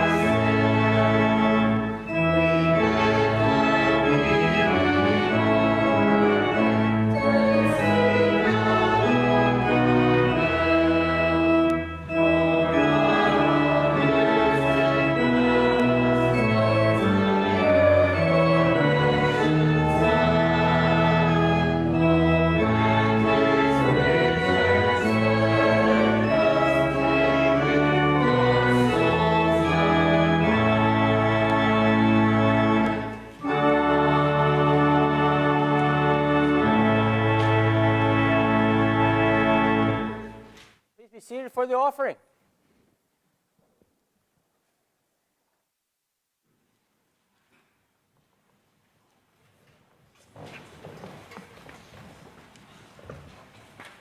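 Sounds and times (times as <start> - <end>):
organ playing sustained chords: 0.0 - 40.5.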